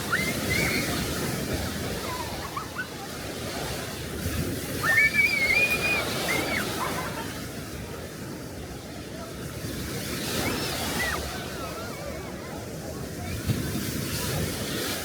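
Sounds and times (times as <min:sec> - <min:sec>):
sea waves washing on shore: 0:00.0 - 0:15.0.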